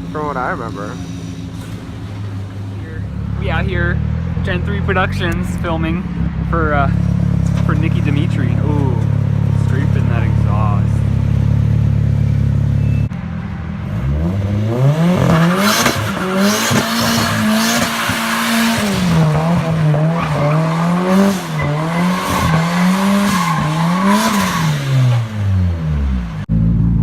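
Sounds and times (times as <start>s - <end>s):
car engine revving: 0.0s - 27.0s
tyres squealing: 19.1s - 25.0s.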